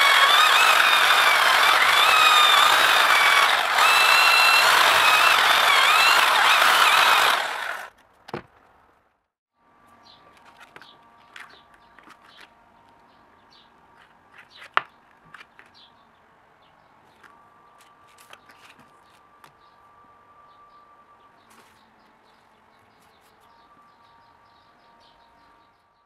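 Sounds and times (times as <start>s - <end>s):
power tool whining: 0.0s - 7.9s.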